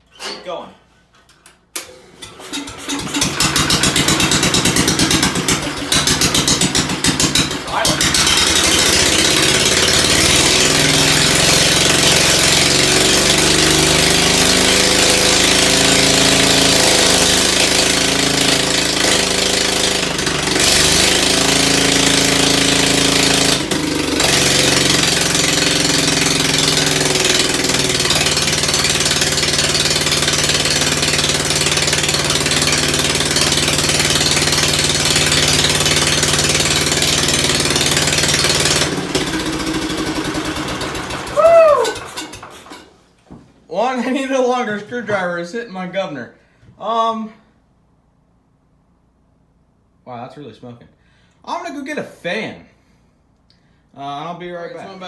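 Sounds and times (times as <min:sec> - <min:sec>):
car engine running: 0:02.7 - 0:42.6.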